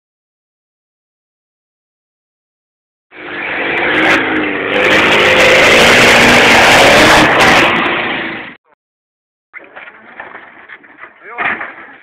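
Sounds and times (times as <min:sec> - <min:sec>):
engine revving hard: 0:03.1 - 0:08.6.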